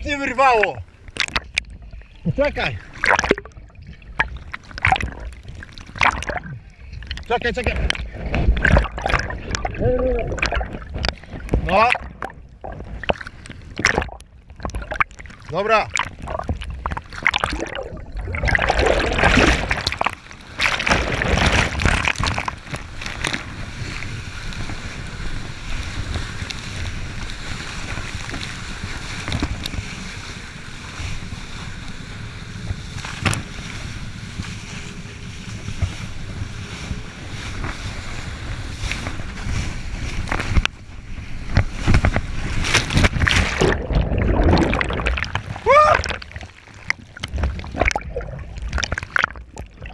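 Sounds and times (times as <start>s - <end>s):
water rushing and splashing: 0.0s - 49.9s
jet ski engine running: 22.8s - 43.1s.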